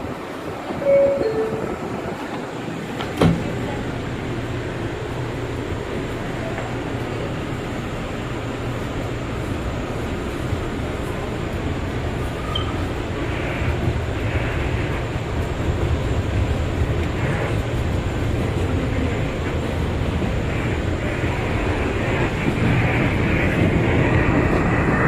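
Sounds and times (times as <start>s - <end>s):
subway car rumble: 0.0s - 25.0s
wheel and rail noise: 0.0s - 25.0s.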